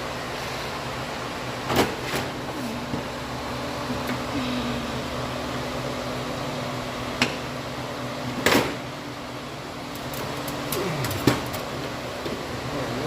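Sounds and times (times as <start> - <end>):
steady machine hum: 0.0 - 13.0
air conditioner knocks and clunks: 1.6 - 2.3, 8.4 - 8.8, 11.0 - 12.5.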